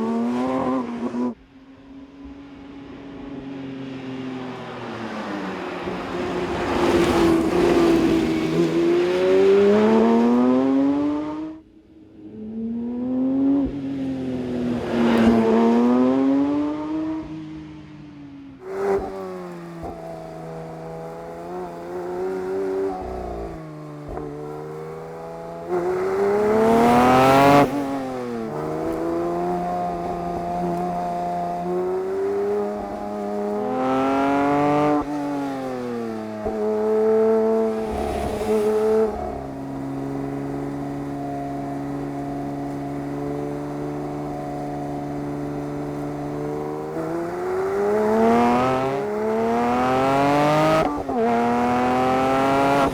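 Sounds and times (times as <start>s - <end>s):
car engine revving hard: 18.6s - 52.9s.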